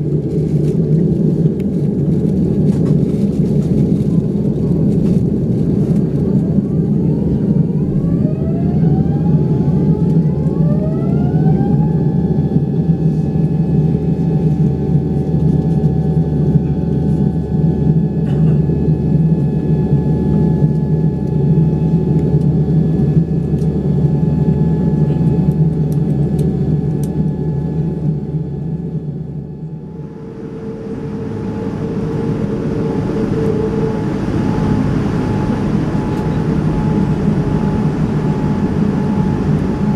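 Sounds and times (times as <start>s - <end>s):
jet engines spooling up: 29.8s - 39.9s.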